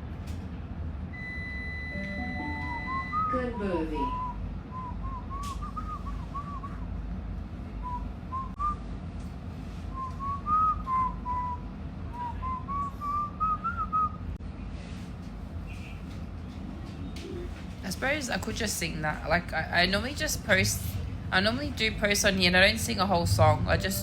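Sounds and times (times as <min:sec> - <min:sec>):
woman whistling a melody: 0:01.9 - 0:06.8, 0:10.0 - 0:11.6, 0:12.2 - 0:14.2
train carriage rumble: 0:01.9 - 0:24.0.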